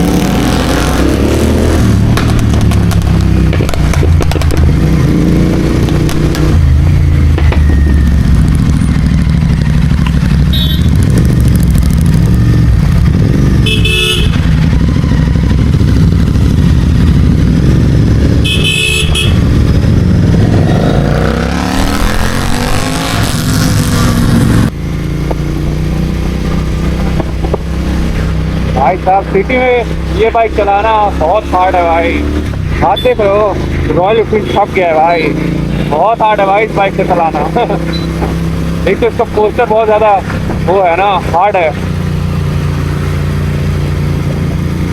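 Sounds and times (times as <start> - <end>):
motorcycle engine running: 1.9 - 44.9
motorcycle horn honks: 10.5 - 11.0, 13.6 - 14.6, 18.4 - 19.5.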